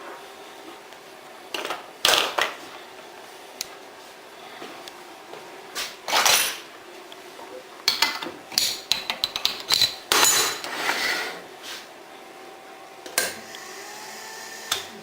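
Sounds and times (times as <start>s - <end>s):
metallic clicks and rattles: 7.9s - 10.1s.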